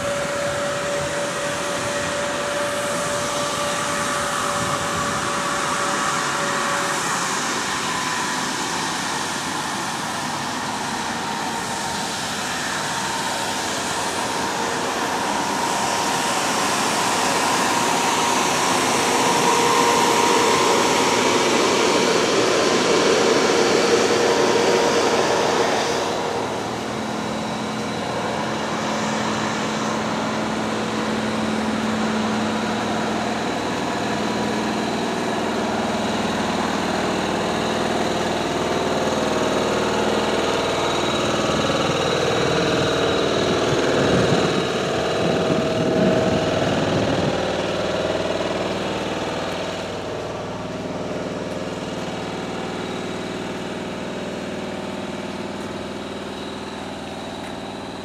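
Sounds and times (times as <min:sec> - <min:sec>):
train drive mechanical hum: 0:00.0 - 0:58.0.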